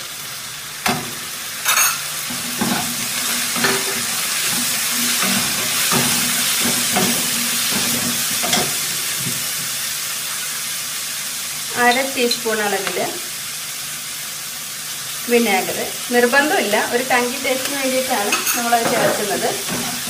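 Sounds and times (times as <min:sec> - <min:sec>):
vegetables sizzling in oil: 0:00.0 - 0:20.0
spatula scraping a pan: 0:01.7 - 0:09.4.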